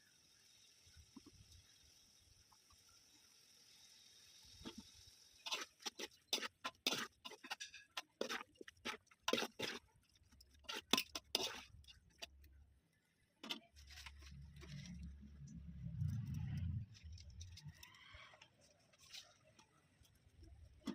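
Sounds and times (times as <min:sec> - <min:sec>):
sharp clicks and crackles: 0:13.4 - 0:20.9
low rumble: 0:14.3 - 0:17.7.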